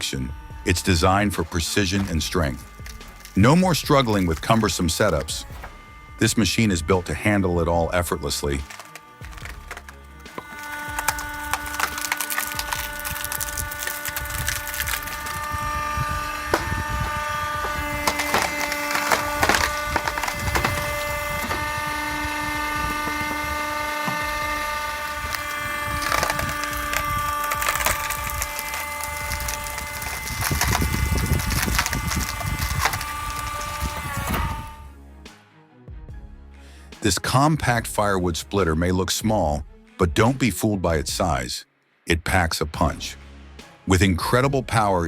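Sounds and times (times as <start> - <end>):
logs cracking and splintering: 0.0 - 34.9
wood splitter motor whine: 0.0 - 34.9.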